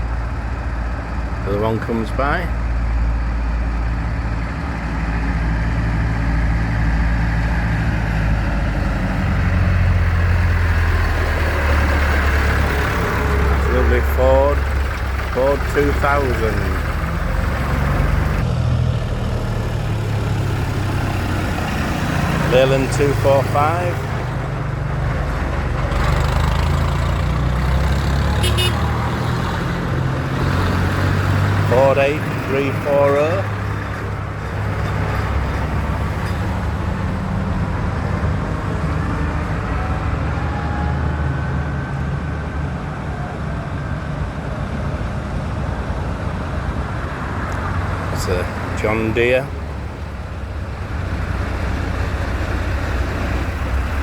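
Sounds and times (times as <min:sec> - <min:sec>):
diesel tractor driving past: 0:00.0 - 0:54.0.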